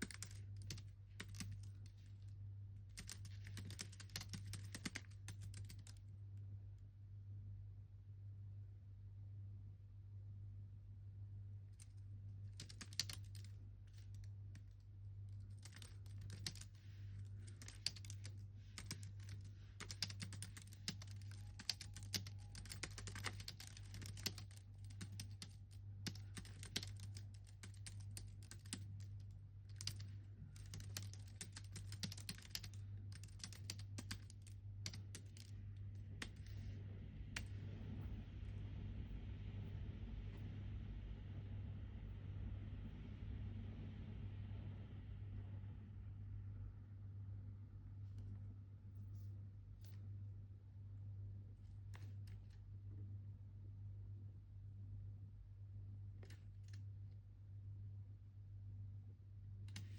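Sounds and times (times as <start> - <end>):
typing on computer keyboard: 0.0 - 2.2, 2.9 - 6.0, 11.8 - 35.5, 36.2 - 36.5
steady low hum: 0.0 - 59.9.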